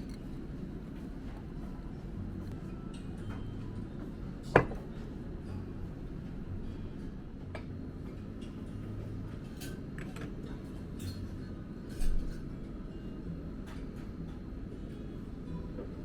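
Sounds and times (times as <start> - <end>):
low hum: 0.0 - 3.9
tableware clinking: 4.5 - 4.9.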